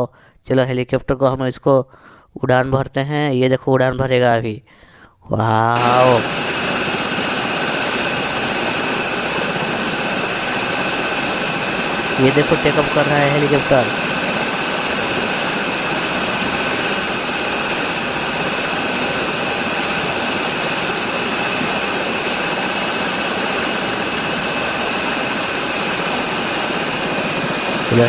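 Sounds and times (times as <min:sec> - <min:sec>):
toy helicopter rotor whirring: 0:05.8 - 0:28.0.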